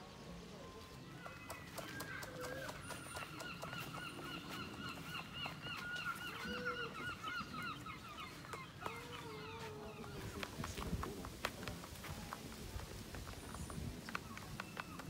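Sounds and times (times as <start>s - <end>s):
fast run of bird calls: 1.2s - 10.8s.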